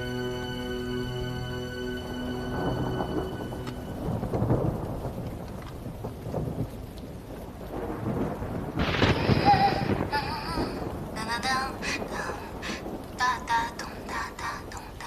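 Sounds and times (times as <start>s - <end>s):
held music notes: 0.0s - 4.9s
rain: 0.0s - 15.0s
thunder rumbling: 2.0s - 15.0s.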